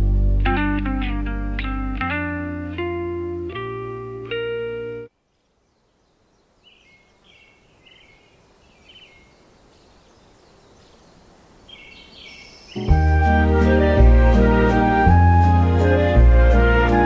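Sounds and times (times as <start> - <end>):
soft background hiss: 0.0 - 17.0
faint bird chirping: 4.5 - 13.0.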